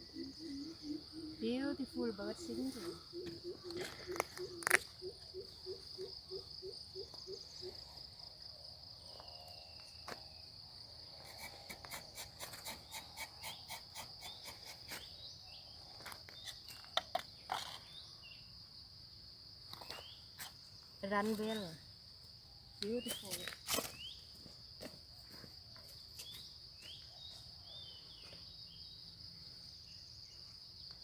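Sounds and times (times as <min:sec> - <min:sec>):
faint bird chirps: 0:00.0 - 0:08.0
high-pitched insect drone: 0:00.0 - 0:18.7.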